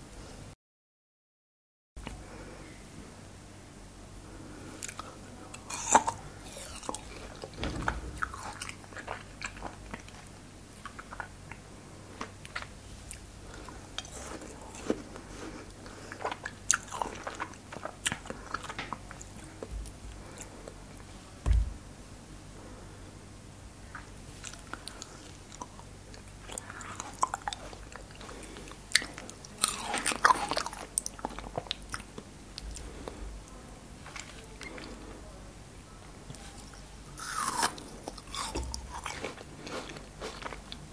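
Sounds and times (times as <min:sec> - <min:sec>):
dull low knock: 0:07.6 - 0:08.6, 0:21.4 - 0:21.9
crunching frozen fruit: 0:26.5 - 0:33.1, 0:37.2 - 0:40.8.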